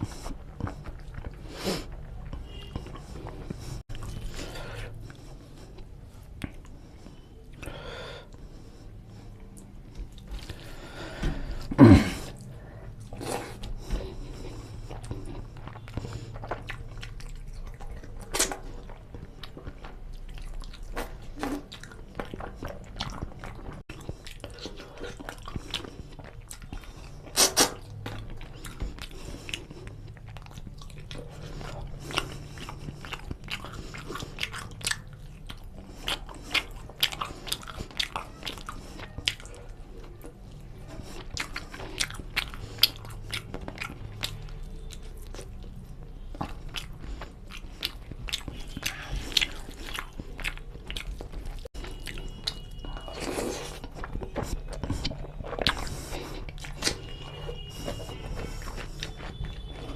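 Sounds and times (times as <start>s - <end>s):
person chewing food: 0.0s - 59.9s.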